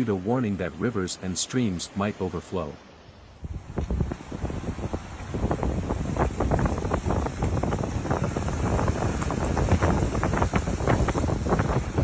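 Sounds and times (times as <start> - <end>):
wind buffeting microphone: 3.3 - 12.0.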